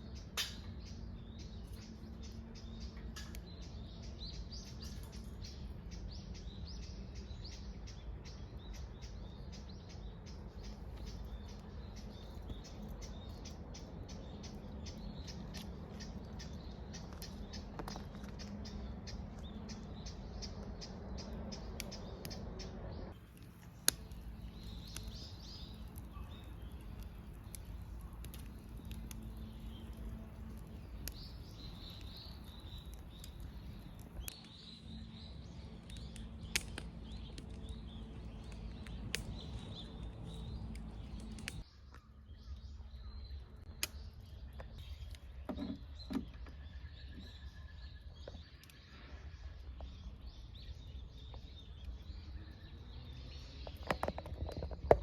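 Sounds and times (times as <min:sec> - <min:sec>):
steady low rumble: 0:00.0 - 0:41.7
small birds chirping: 0:00.0 - 0:55.0.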